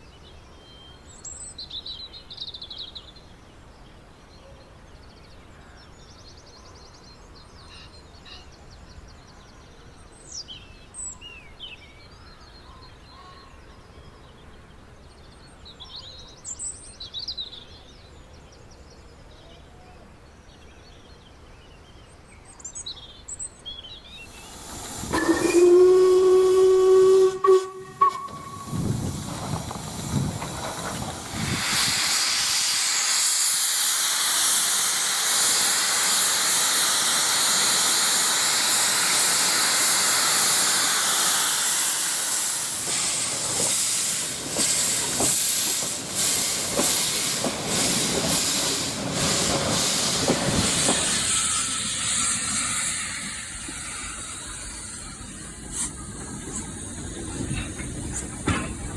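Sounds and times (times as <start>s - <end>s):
steam hissing: 24.2s - 58.9s
steam locomotive whistle: 24.9s - 29.0s, 48.7s - 56.0s.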